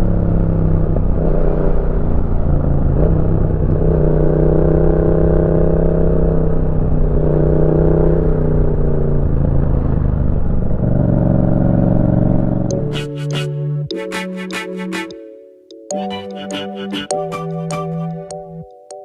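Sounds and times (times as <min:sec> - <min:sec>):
motorcycle engine while riding: 0:00.0 - 0:12.7
music: 0:12.7 - 0:19.0.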